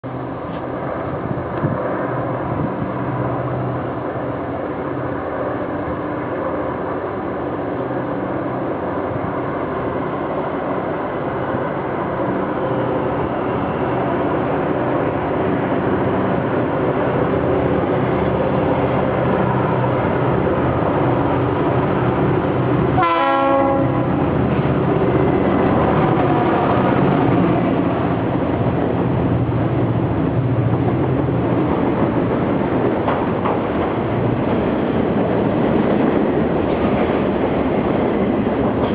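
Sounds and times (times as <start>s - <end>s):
diesel locomotive engines droning: 0.0s - 38.9s
train horn blast: 23.0s - 24.1s.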